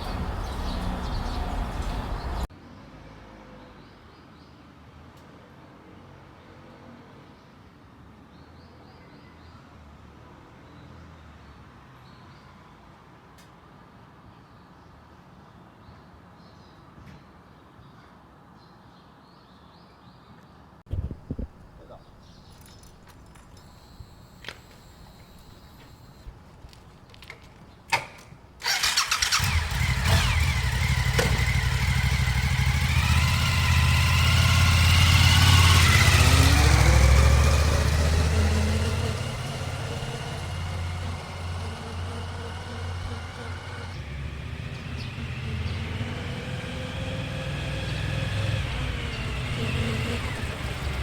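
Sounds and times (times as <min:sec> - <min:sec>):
motorcycle engine starting and revving: 0:00.0 - 0:02.5, 0:20.9 - 0:51.0.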